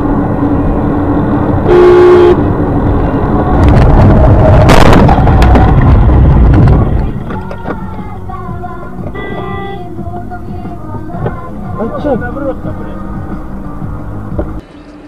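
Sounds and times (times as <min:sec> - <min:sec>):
loud rumbling road noise: 0:00.0 - 0:15.0
car horn: 0:01.6 - 0:02.6, 0:09.1 - 0:09.9.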